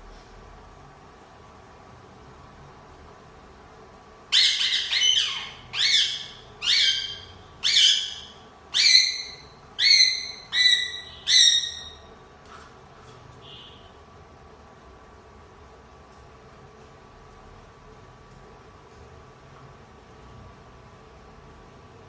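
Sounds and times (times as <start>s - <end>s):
parrot squawking: 4.3s - 12.1s.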